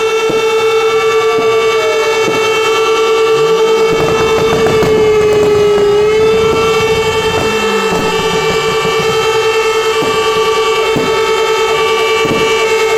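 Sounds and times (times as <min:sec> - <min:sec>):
fire engine horn tones: 0:00.0 - 0:12.9
low engine rumble: 0:03.1 - 0:12.6.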